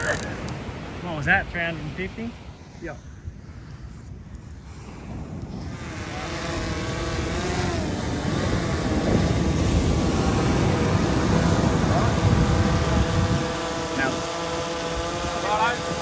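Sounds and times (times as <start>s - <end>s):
wind and surf rumble: 0.0s - 16.0s
motor with wavering pitch: 5.5s - 16.0s.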